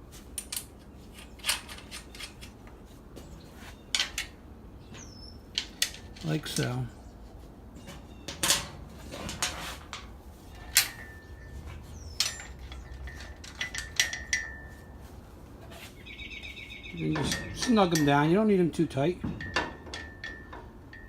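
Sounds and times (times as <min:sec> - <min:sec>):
metal washers and nuts clinking: 0:05.5 - 0:06.9, 0:08.3 - 0:15.1, 0:17.0 - 0:21.0.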